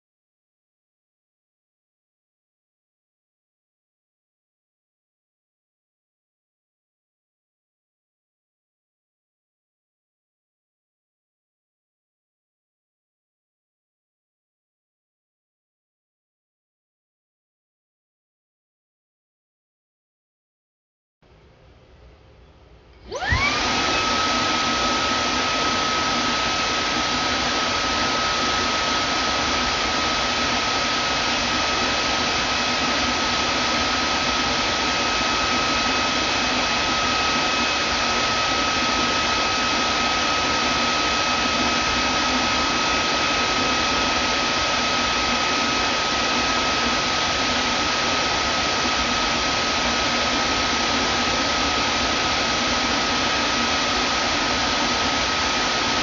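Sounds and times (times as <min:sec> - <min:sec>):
vacuum cleaner whining: 0:22.9 - 0:56.0.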